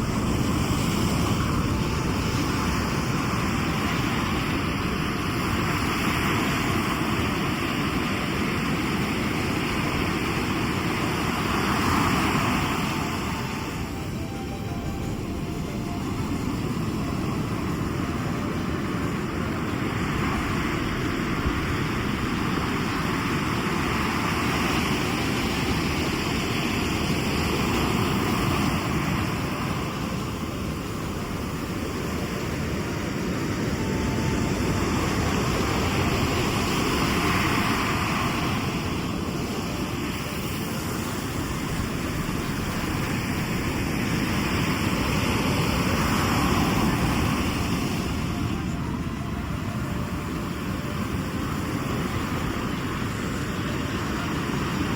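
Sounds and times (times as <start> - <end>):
waves washing onto shore: 0.0 - 54.9.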